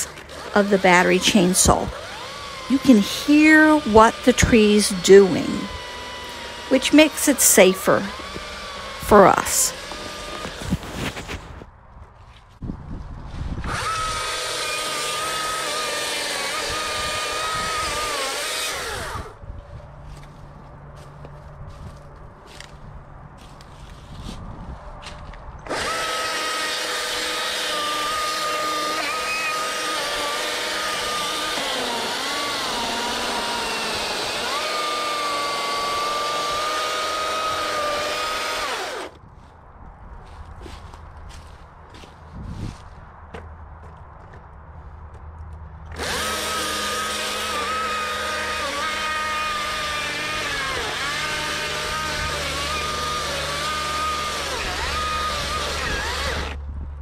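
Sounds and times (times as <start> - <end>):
battery chainsaw whining: 0.0 - 11.3, 13.6 - 19.4, 25.6 - 39.2, 45.9 - 56.6
chainsaw cutting into wood: 0.0 - 11.6, 13.6 - 19.4, 25.6 - 39.2, 45.9 - 56.6.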